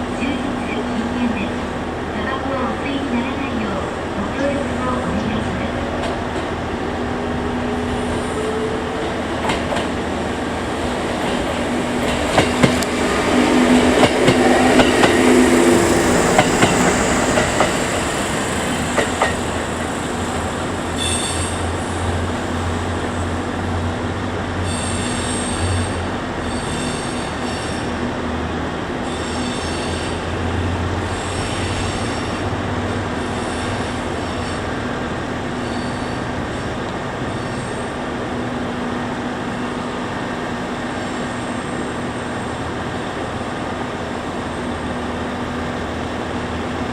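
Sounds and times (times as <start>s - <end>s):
train low hum: 0.0s - 46.9s
train wheels clicking over rail joints: 8.1s - 10.2s, 10.8s - 20.0s.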